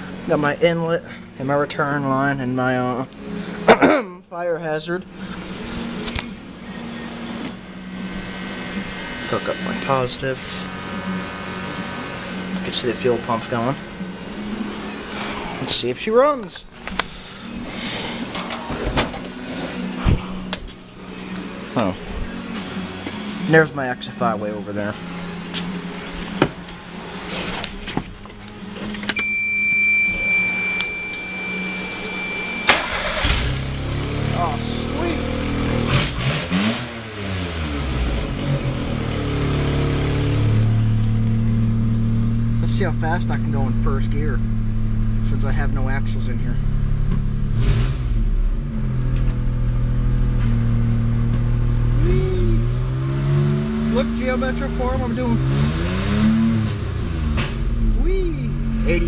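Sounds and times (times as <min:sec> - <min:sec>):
low hum: 0:05.0 - 0:35.5, 0:56.9 - 0:59.0
car engine revving unloaded: 0:16.6 - 0:23.6, 0:25.1 - 0:42.6, 0:55.0 - 0:59.0
high-pitched electric whine: 0:29.0 - 0:35.9.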